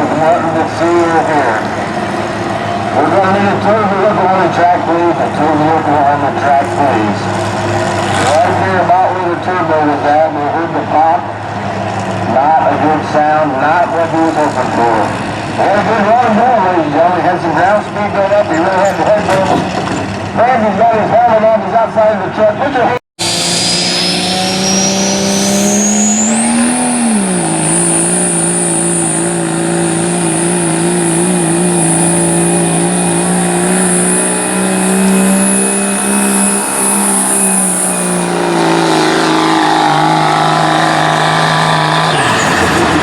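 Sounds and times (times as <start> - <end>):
diesel engine under load: 0.0 - 43.0
turbocharger whistle: 23.2 - 43.0.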